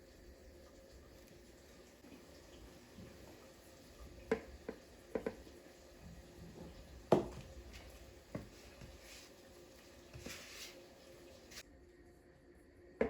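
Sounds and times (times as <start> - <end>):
soft rustle: 7.6 - 11.6.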